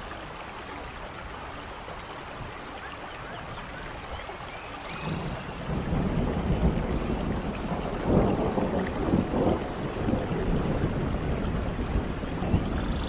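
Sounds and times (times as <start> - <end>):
steady rain: 0.0 - 13.0
thunder rumbling: 5.0 - 13.0.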